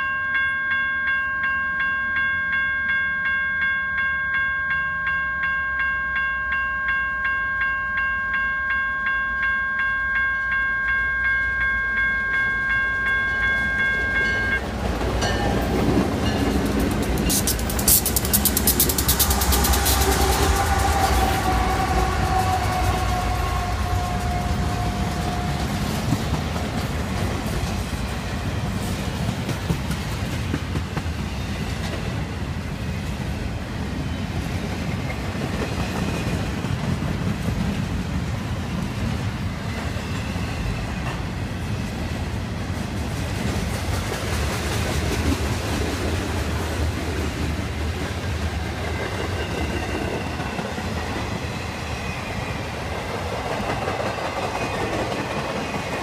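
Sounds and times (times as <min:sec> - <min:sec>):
freight cars rumbling past: 0:13.4 - 0:28.9.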